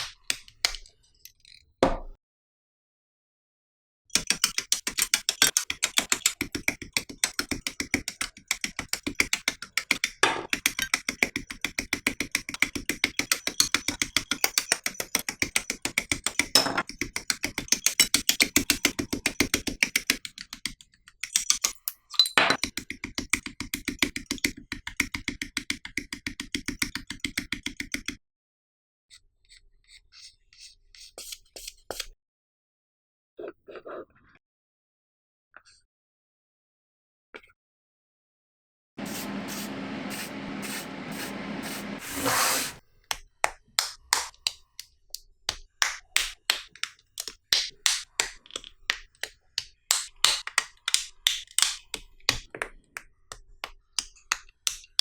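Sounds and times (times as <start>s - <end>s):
sandpaper rubbing on plastic: 39.0s - 42.8s.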